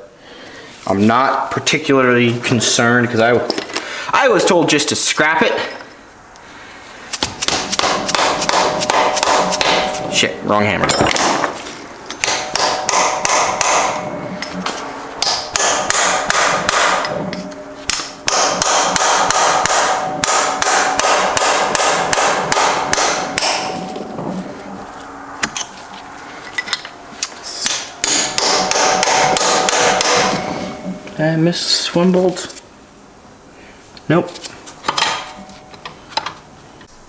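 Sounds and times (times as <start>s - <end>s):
hammer blows on metal: 7.2s - 11.6s, 12.2s - 24.8s, 25.4s - 31.2s.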